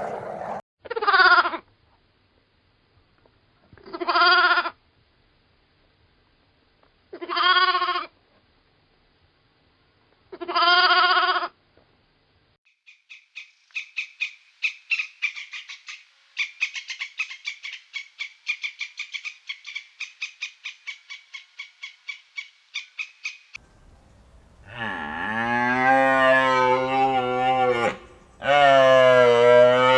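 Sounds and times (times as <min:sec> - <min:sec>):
rapid chirping calls: 0:12.8 - 0:24.8
drawn-out bleats: 0:24.6 - 0:29.9.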